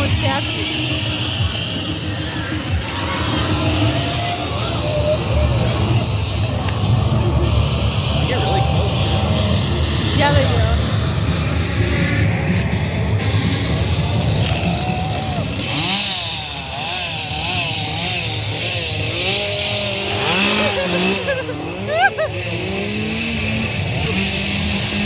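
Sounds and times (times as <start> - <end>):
motor engine running with hiss: 0.0 - 25.0
wavering voices: 0.0 - 25.0
loud high cry: 2.8 - 7.3, 14.2 - 22.8.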